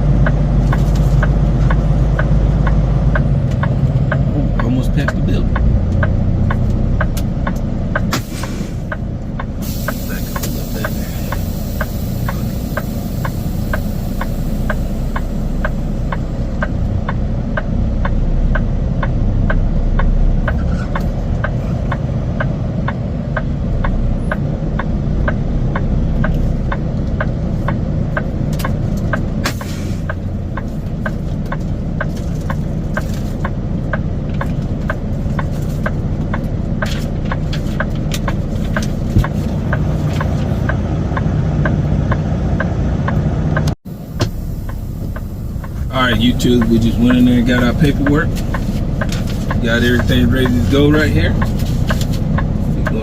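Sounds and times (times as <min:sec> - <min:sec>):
diesel engine running: 0:00.0 - 0:53.0
steady clicking: 0:00.1 - 0:08.1, 0:44.6 - 0:53.0
air hissing: 0:08.1 - 0:08.9, 0:09.6 - 0:15.8.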